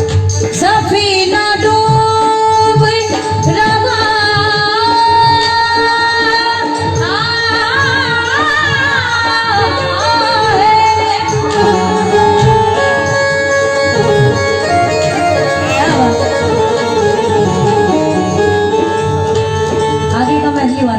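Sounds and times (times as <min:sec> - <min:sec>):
woman singing: 0:00.5 - 0:18.9
instruments holding steady notes: 0:11.5 - 0:20.9.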